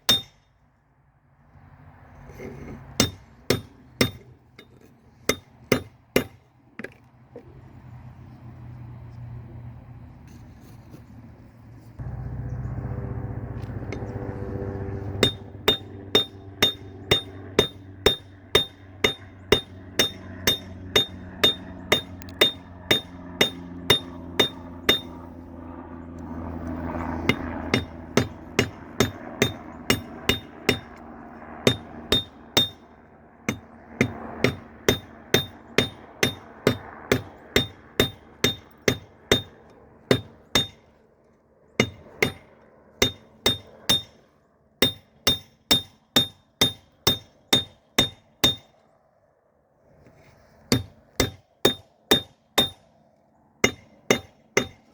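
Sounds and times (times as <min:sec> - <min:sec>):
hammer ringing on anvil: 0:00.1 - 0:00.4, 0:15.2 - 0:25.2, 0:31.6 - 0:32.8, 0:33.5 - 0:40.8, 0:41.8 - 0:42.4, 0:43.0 - 0:44.2, 0:44.8 - 0:48.7, 0:50.7 - 0:52.8, 0:53.6 - 0:54.8
steady hum: 0:12.0 - 0:40.9.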